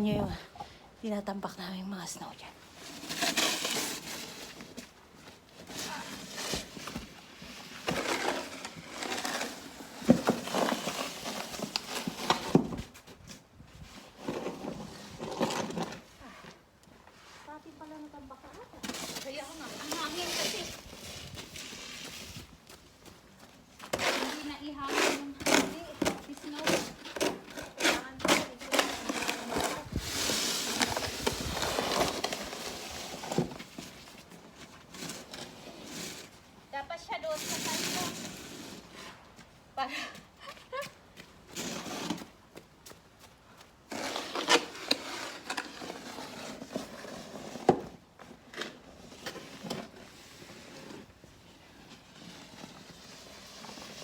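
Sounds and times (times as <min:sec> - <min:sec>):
metal shovel scraping snow: 0:02.7 - 0:04.8, 0:05.6 - 0:12.8, 0:14.0 - 0:16.5, 0:18.8 - 0:22.4, 0:23.8 - 0:34.1, 0:34.8 - 0:39.3, 0:41.5 - 0:42.4, 0:43.9 - 0:54.0.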